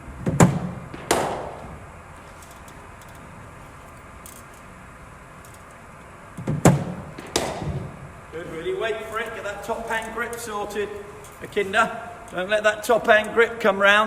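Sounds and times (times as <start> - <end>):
bat striking cricket ball: 0.2 - 1.8, 6.4 - 8.0.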